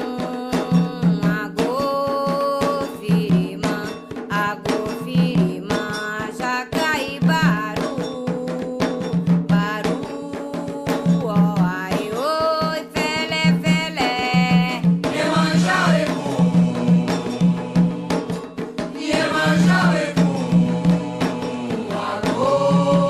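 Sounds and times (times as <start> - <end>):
hand drums beating: 0.0 - 23.0
sharp percussion strikes: 0.0 - 23.0
chant singing: 13.7 - 23.0.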